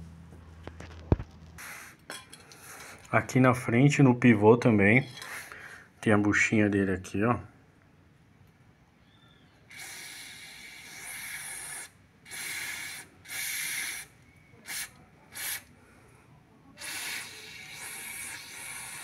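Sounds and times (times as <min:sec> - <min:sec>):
aerosol spray hissing: 0:09.7 - 0:15.7, 0:16.8 - 0:19.0.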